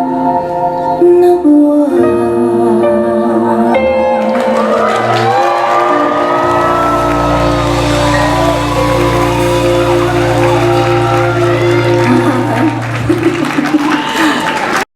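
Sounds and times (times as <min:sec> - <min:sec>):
live band music: 0:03.8 - 0:14.3
deep bass note: 0:05.3 - 0:13.3.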